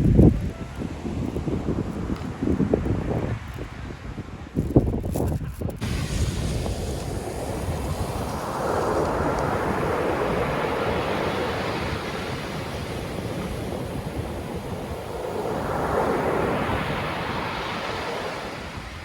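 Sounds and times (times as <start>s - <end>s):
wind rumbling on microphone: 0.0s - 19.0s
surf washing onto shore: 5.8s - 19.0s.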